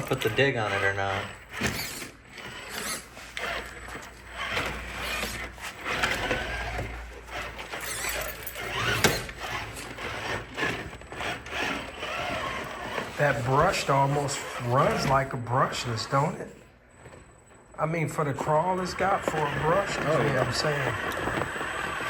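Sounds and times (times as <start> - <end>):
electric motor and gear whine: 0.0 - 22.0
tyres scraping over terrain: 18.5 - 22.0.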